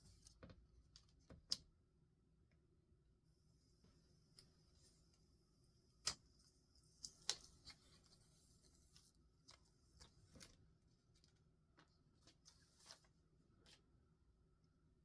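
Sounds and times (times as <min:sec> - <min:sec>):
soft paper rustle: 0:06.8 - 0:14.0.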